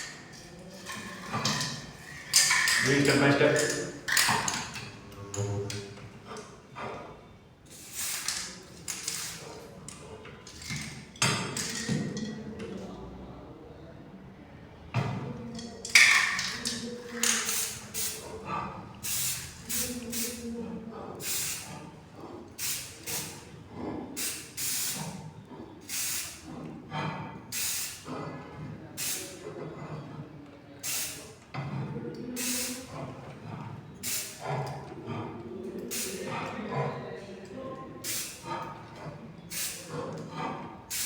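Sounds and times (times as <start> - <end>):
aerosol can spraying in hissing bursts: 7.7 - 9.4, 17.2 - 18.2, 19.0 - 20.4, 21.2 - 21.7, 22.6 - 23.4, 24.2 - 25.1, 25.9 - 26.4, 27.5 - 28.0, 29.0 - 29.3, 30.8 - 31.3, 32.4 - 32.8, 34.0 - 34.4, 35.9 - 36.2, 38.0 - 38.4, 39.5 - 39.8.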